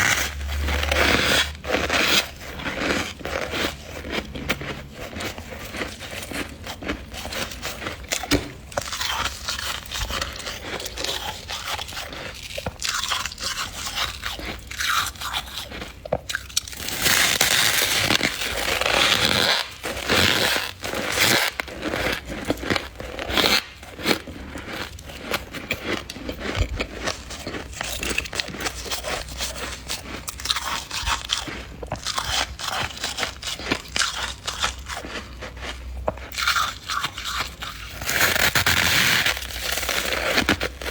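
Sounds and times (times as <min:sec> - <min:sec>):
frost crunching: 0:00.0 - 0:35.7, 0:36.3 - 0:40.9.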